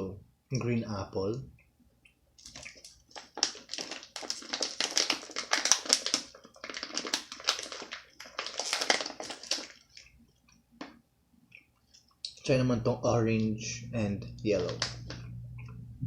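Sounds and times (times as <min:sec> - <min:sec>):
mouth chewing sticky candy: 0:01.6 - 0:12.5
wet mouth clicks and smacks: 0:02.0 - 0:04.5.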